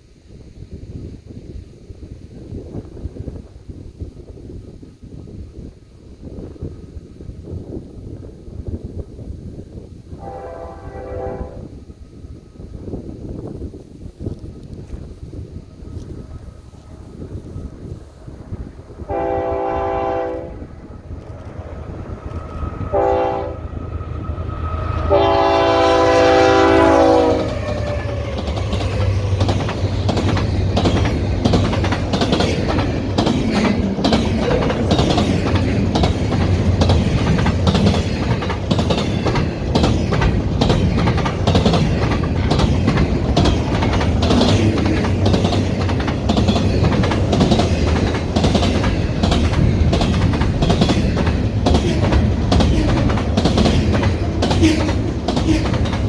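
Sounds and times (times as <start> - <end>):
freight train rumbling: 0.0 - 56.0
train air horn blasts: 10.1 - 11.9, 19.0 - 21.0, 22.2 - 28.5
wheels clicking over rail joints: 27.3 - 56.0.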